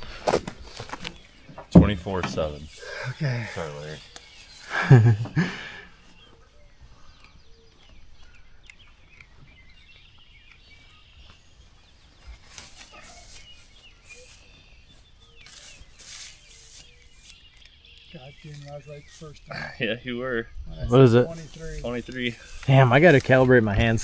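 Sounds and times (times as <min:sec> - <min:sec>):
rustling bursts: 0:00.0 - 0:06.1, 0:12.0 - 0:17.6, 0:21.0 - 0:24.0
songbird chirps: 0:00.0 - 0:24.0.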